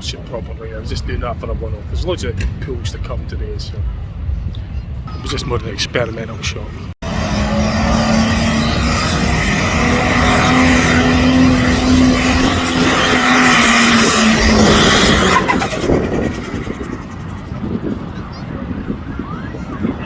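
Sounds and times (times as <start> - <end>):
pulling tractor engine roaring: 7.0 - 19.0.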